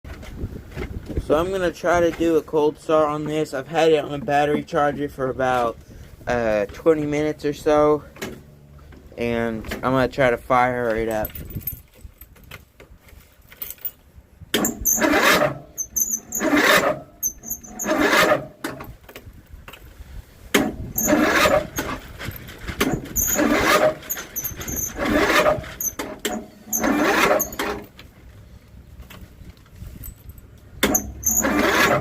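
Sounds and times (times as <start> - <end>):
starter cranking engine: 14.6 - 18.9, 20.6 - 28.0, 30.8 - 32.0.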